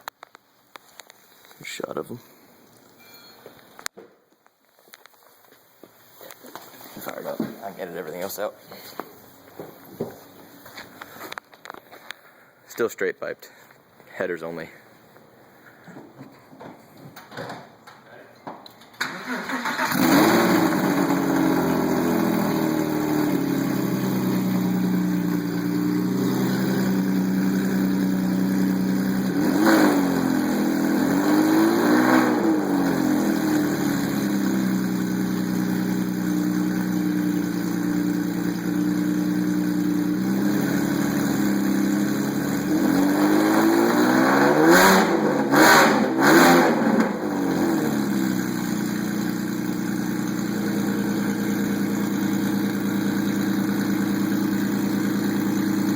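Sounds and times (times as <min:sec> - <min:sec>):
car engine idling and revving: 0:19.0 - 0:55.9.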